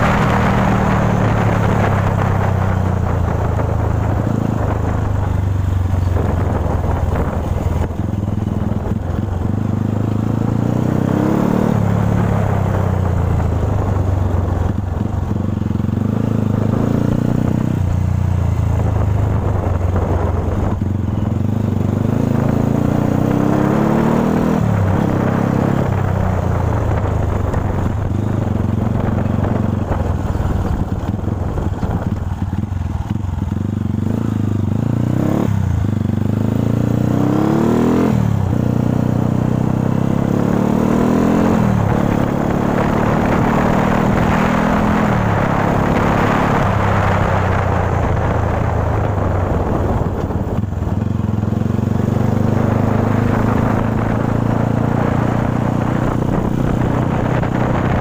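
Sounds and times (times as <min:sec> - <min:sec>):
dirt bike engine revving: 0:21.9 - 0:25.8.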